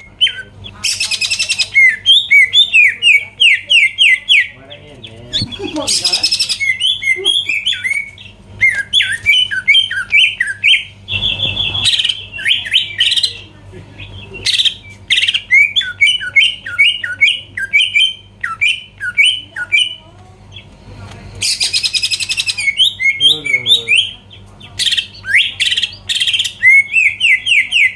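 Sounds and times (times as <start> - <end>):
bird whistling song: 0.0 - 4.6, 5.3 - 13.4, 14.1 - 20.0, 21.4 - 27.9
harsh bird chattering: 0.0 - 20.8, 21.4 - 27.9.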